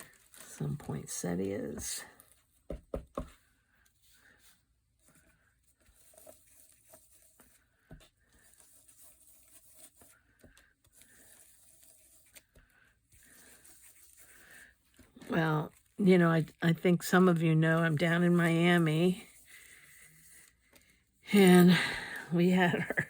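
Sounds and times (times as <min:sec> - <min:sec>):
paper rustling and tapping: 0:01.7 - 0:03.5.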